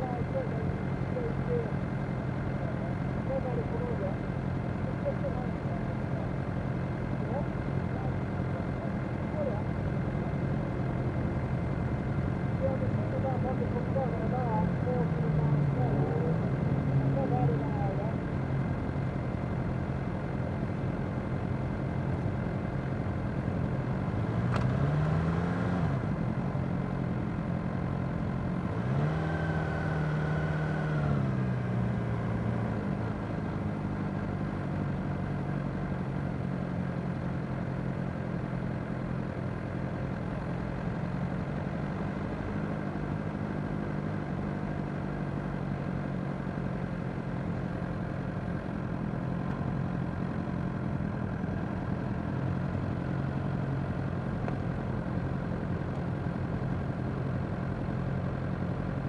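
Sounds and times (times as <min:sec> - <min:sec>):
motorcycle engine revving: 0:28.4 - 0:33.9.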